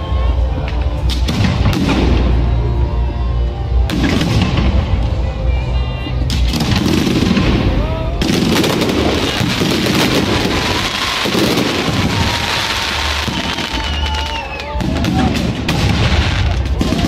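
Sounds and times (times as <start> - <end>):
firework crackling: 6.3 - 17.0
low rumbling firework booms: 6.5 - 14.1
descending firework whistles: 8.5 - 17.0.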